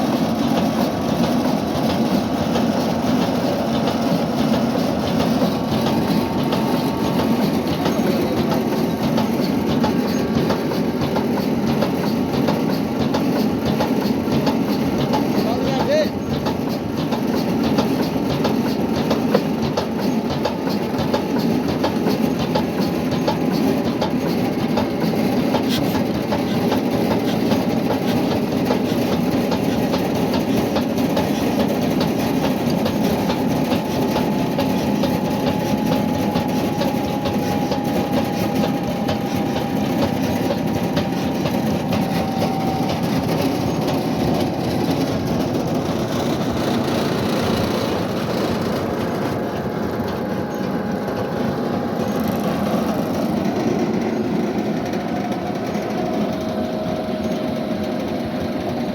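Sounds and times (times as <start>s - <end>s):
diesel engine clattering: 0.0s - 58.9s.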